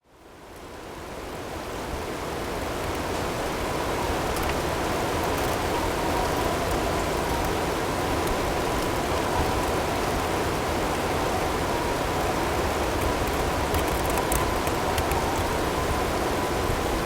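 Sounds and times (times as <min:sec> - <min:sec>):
faint ticks of hail: 0:02.7 - 0:11.1, 0:12.2 - 0:16.2.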